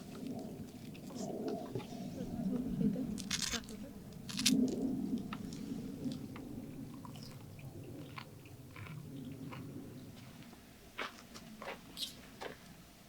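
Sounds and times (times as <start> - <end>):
chewing with crisp crackles: 4.2 - 10.6.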